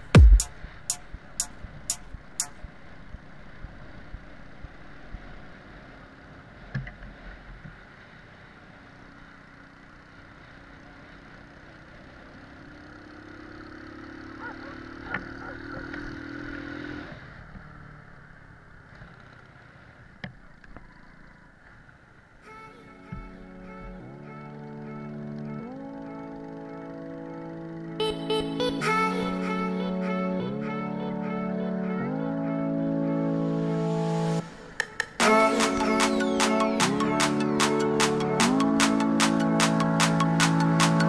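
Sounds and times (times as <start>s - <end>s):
moped engine running: 8.6s - 19.8s, 23.8s - 30.8s.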